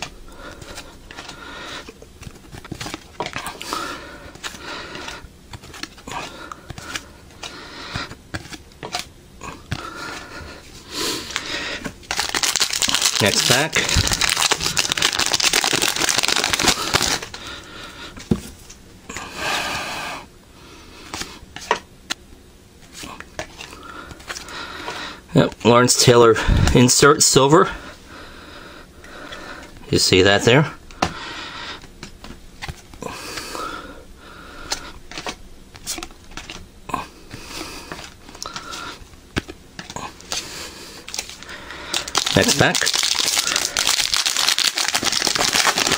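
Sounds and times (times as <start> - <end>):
trading cards clicking and rustling: 0.0 - 3.7, 4.3 - 10.2, 11.3 - 17.4, 34.7 - 36.6, 37.8 - 45.9
wrapper crinkling and tearing: 11.3 - 17.4, 41.1 - 45.9.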